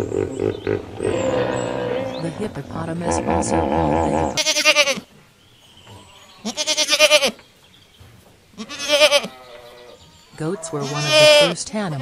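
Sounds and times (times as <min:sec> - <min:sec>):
goat bleating: 0:03.1 - 0:05.1, 0:06.0 - 0:07.4, 0:08.6 - 0:12.0.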